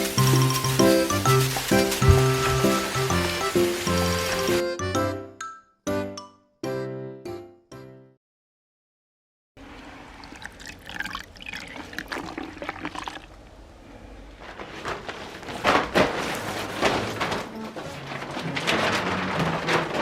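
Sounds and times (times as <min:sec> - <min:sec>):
water pouring and splashing: 0:00.0 - 0:04.6, 0:09.6 - 0:13.4.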